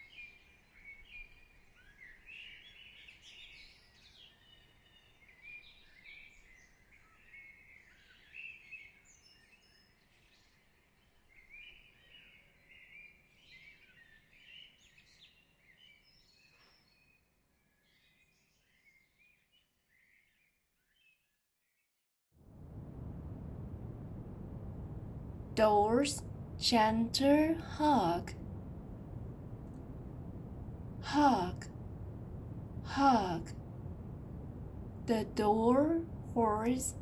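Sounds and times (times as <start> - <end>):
soft hiss: 22.5 - 37.0.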